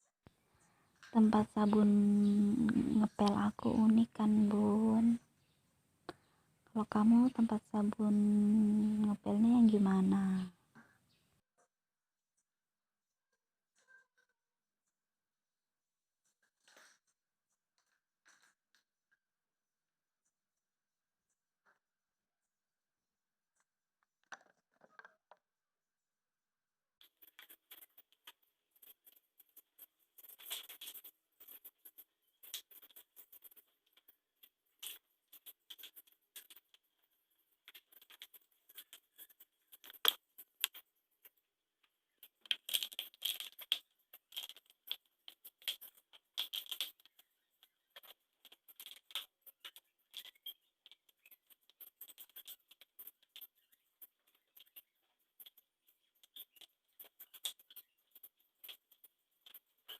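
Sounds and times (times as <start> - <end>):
household items clicking and rattling: 27.0 - 59.9.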